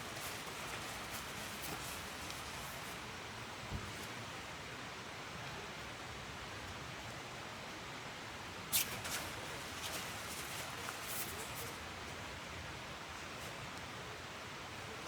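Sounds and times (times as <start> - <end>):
outdoor ambience hiss: 0.0 - 15.0.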